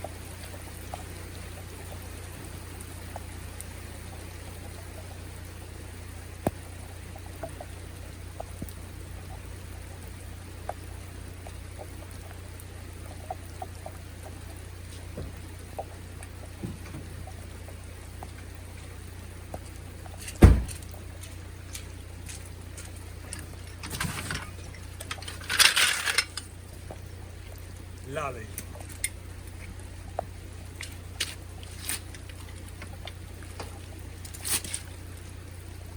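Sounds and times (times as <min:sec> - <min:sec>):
faint ticks of drops: 0:00.0 - 0:35.9
rain falling and dripping: 0:00.0 - 0:35.9
loud thump: 0:20.4 - 0:20.8.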